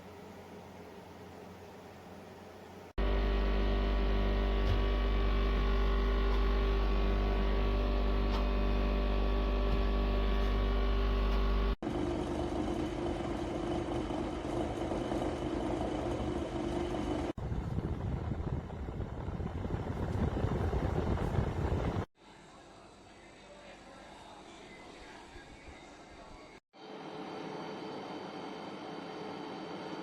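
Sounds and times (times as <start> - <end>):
dehumidifier humming: 0.0 - 11.8.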